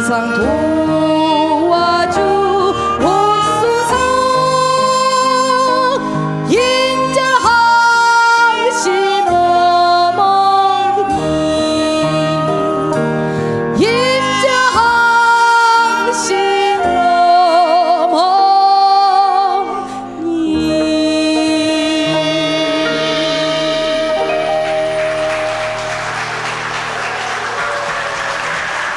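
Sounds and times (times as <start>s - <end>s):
woman singing: 0.0s - 26.7s
traditional ensemble playing slow music: 0.0s - 27.6s.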